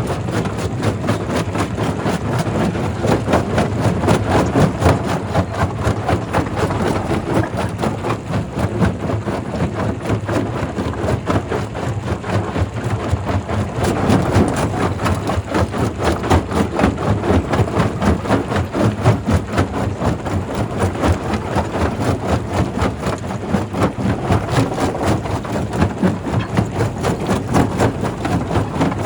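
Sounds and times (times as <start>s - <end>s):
rock crusher machine drone: 2.3s - 9.7s, 19.4s - 29.0s.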